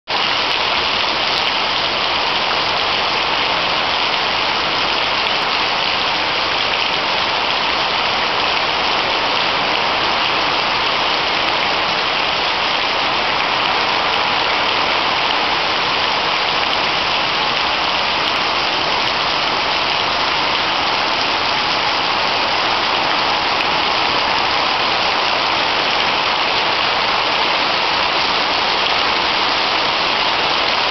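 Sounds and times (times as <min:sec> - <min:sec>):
heavy rain pouring: 0:00.1 - 0:30.9.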